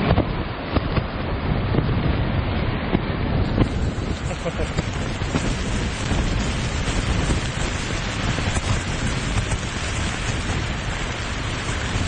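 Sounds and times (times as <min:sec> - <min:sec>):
gusty storm wind: 0:00.0 - 0:12.0
rain on a tent: 0:00.0 - 0:12.0
wind rumble on microphone: 0:00.0 - 0:12.0.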